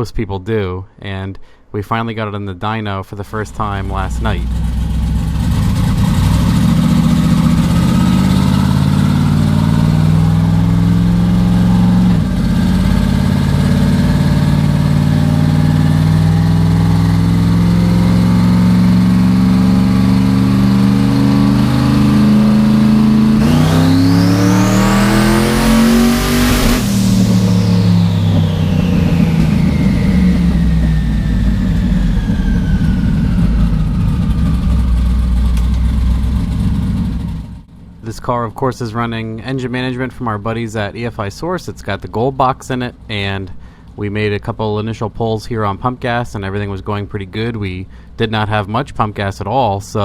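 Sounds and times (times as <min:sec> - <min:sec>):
race engine revving under load: 0:03.4 - 0:38.1
turbo whistle: 0:03.8 - 0:36.6.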